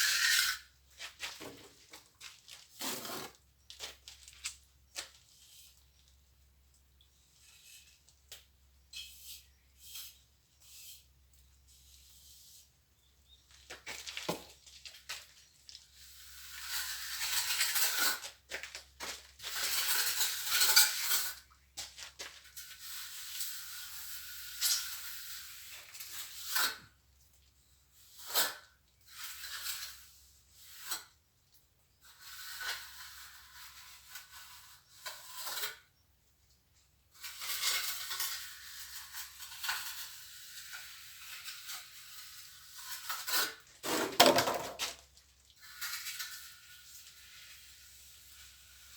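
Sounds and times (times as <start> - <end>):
trowel scraping wet mortar: 0.0 - 1.8, 2.6 - 5.9, 9.0 - 12.7, 37.2 - 48.9.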